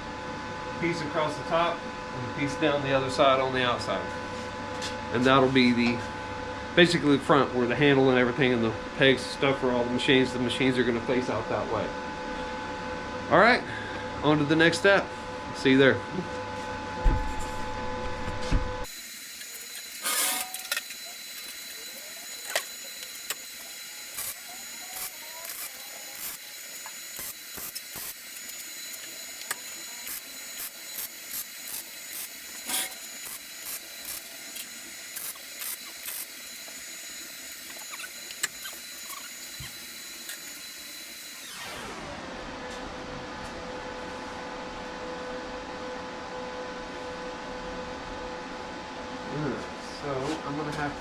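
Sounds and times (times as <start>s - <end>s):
welding crackles and pops: 18.9s - 40.5s
welding hissing sizzle: 18.9s - 41.5s.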